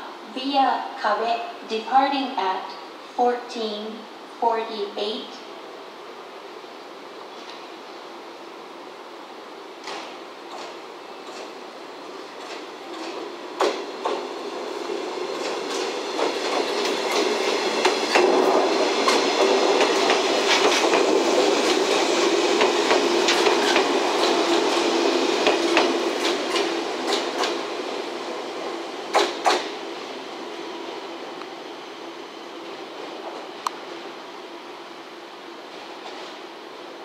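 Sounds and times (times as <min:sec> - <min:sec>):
train wheels clacking on rails: 0:09.8 - 0:11.6, 0:12.4 - 0:27.7, 0:28.6 - 0:29.8.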